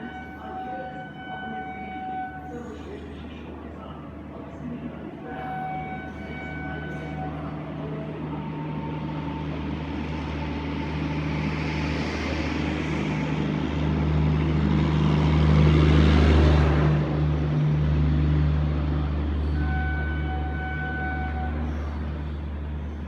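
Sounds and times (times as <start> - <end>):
locomotive low hum: 0.0 - 23.0
train rumbling rush: 0.0 - 23.0.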